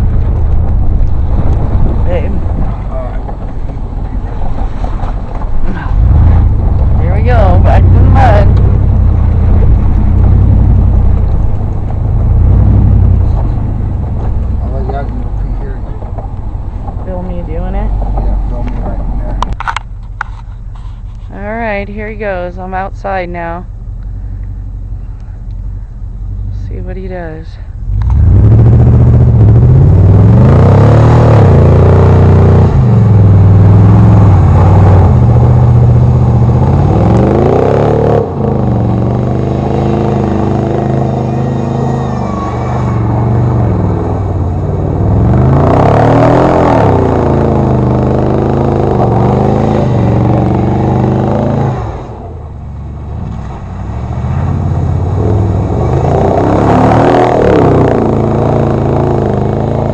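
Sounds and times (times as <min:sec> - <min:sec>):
engine revving hard: 0:05.9 - 0:11.2, 0:27.9 - 0:52.5, 0:54.0 - 0:59.9.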